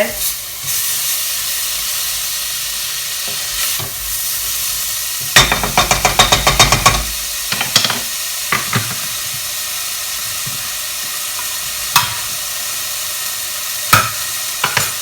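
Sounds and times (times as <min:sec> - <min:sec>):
vegetables sizzling in a frying pan: 0:00.0 - 0:15.0
utensil knocking against a pan: 0:05.4 - 0:09.1, 0:12.0 - 0:12.3, 0:13.9 - 0:15.0.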